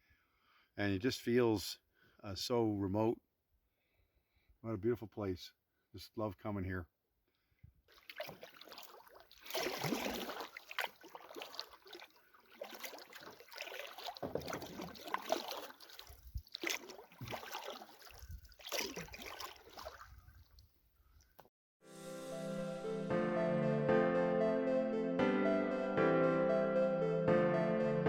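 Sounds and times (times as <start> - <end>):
paddle splashing in water: 7.9 - 21.3.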